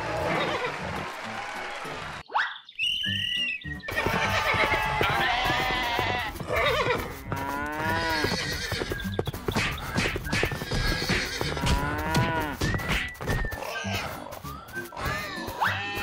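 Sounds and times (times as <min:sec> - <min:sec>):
cartoon music with steady beat: 0:03.6 - 0:16.0
horse whinnying: 0:07.8 - 0:09.0.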